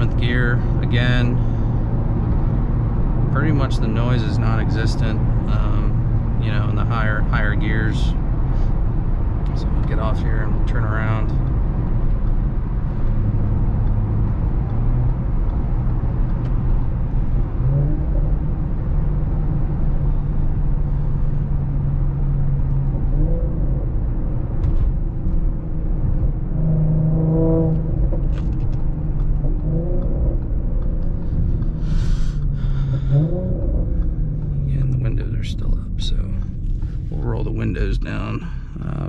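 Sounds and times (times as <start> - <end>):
low exhaust drone: 0.0 - 39.0
road noise: 0.0 - 39.0.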